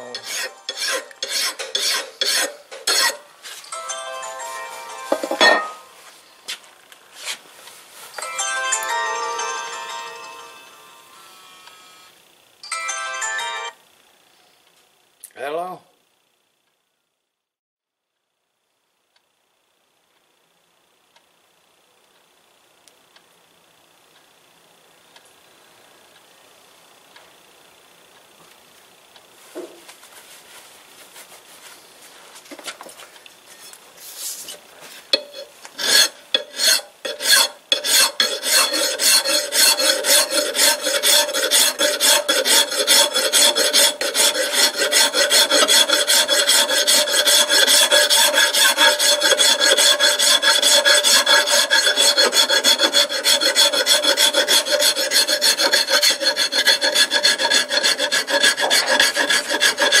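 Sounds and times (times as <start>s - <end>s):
lathe tool rasping metal: 0.0s - 3.2s, 35.1s - 60.0s.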